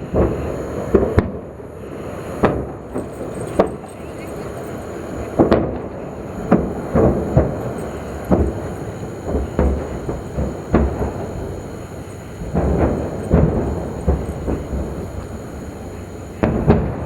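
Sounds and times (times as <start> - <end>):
distant explosion booms: 0.0 - 3.9, 5.0 - 17.0
low fire rumble: 0.0 - 17.0.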